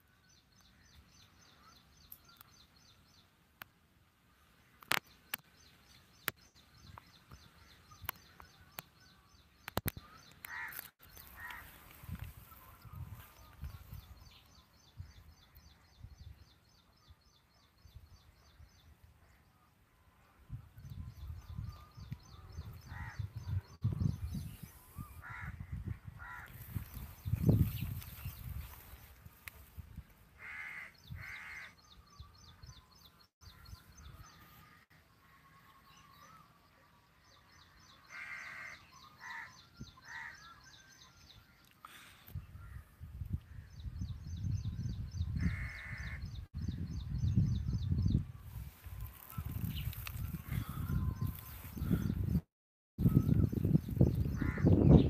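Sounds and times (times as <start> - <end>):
birds chirping: 0.0 - 55.0
harsh bird calls: 6.2 - 16.0, 21.5 - 28.6, 30.4 - 36.8, 37.4 - 42.9, 43.6 - 46.5, 53.0 - 55.0.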